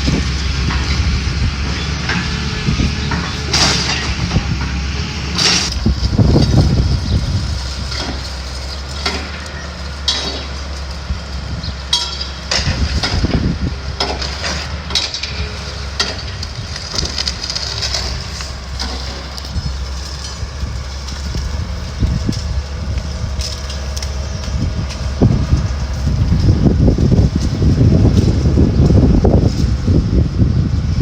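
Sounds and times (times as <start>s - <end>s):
excavator engine running: 0.0s - 31.0s
debris falling: 0.1s - 11.0s, 11.9s - 29.5s
timber cracking and breaking: 12.0s - 28.6s.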